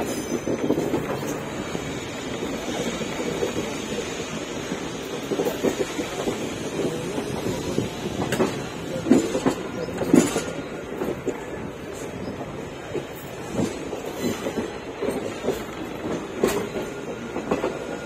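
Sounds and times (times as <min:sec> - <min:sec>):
train rumble inside coach: 0:00.0 - 0:18.0
wheels clacking over rail joints: 0:05.1 - 0:18.0.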